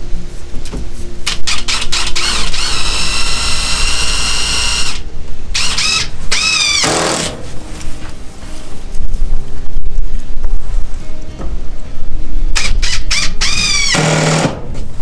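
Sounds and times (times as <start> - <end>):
drill clicks: 1.3 - 5.0
cordless drill motor whining: 1.4 - 5.0, 5.6 - 7.3.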